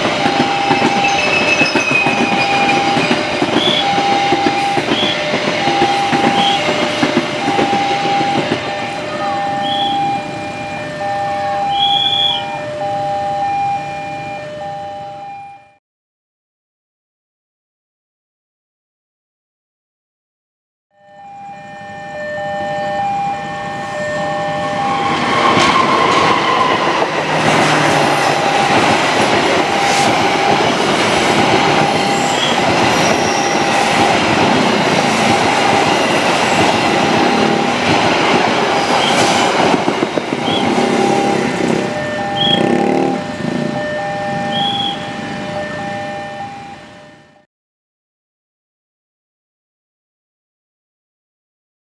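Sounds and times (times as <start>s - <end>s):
train wheels roaring on rails: 0.0s - 13.6s, 21.8s - 47.4s
level crossing warning bell: 0.0s - 15.8s, 21.0s - 25.6s, 26.2s - 47.5s
motorcycle engines: 40.4s - 45.0s.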